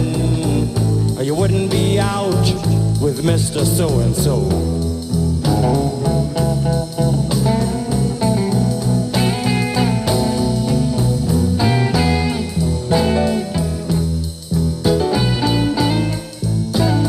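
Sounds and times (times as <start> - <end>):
bass line: 0.0 - 17.0
electric guitar lines: 0.0 - 17.0.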